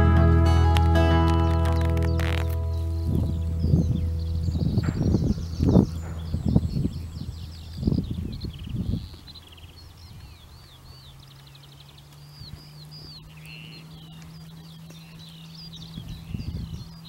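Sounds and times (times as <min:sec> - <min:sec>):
faint low hum: 0:00.0 - 0:17.0
songbirds singing: 0:00.0 - 0:17.0.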